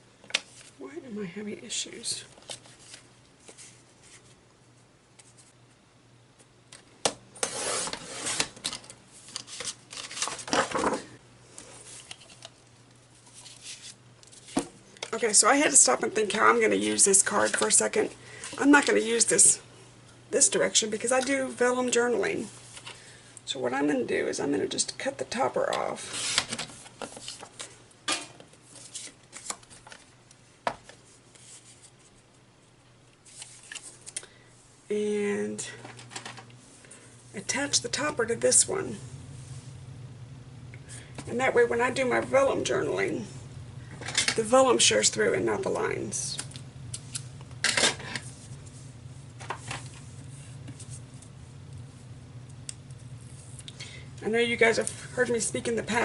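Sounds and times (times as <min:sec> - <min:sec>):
paper cards rustling and sliding: 0:00.3 - 0:00.8, 0:02.4 - 0:04.4, 0:05.2 - 0:05.6, 0:07.4 - 0:12.6, 0:13.2 - 0:14.7, 0:26.0 - 0:27.8, 0:28.6 - 0:30.1, 0:30.8 - 0:32.2, 0:33.2 - 0:34.2
cardstock cutting and rustling: 0:09.3 - 0:11.0.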